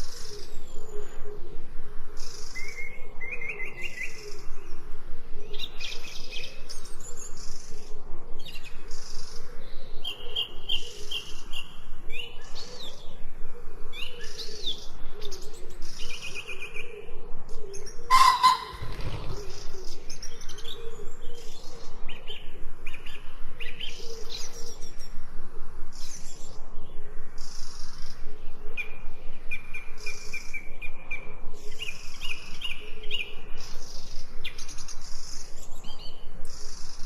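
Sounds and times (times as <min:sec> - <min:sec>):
birds singing: 0:05.4 - 0:25.2.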